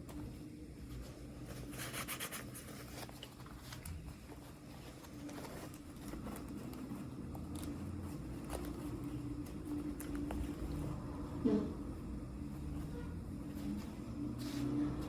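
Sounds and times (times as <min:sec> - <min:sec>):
faint low hum: 0:00.0 - 0:15.0
plastic packaging rustling: 0:00.9 - 0:11.0.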